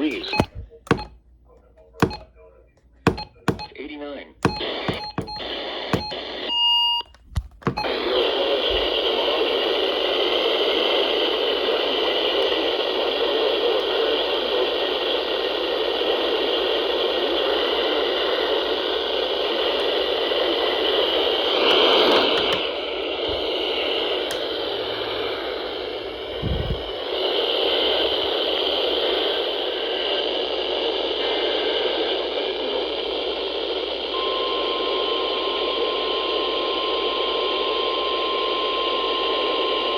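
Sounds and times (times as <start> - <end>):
clicks: 0.0 - 3.8, 4.4 - 6.3, 7.0 - 8.0
short beep: 0.1 - 1.1, 3.1 - 3.7, 4.4 - 6.2
radio static hiss: 7.9 - 22.7.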